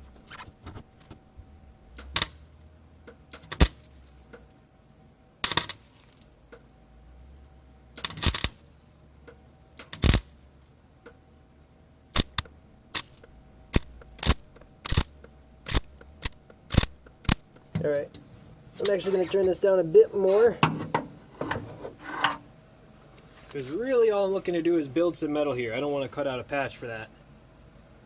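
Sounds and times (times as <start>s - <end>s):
welder arc crackles: 1.9s - 4.5s, 5.4s - 11.2s, 12.1s - 20.5s.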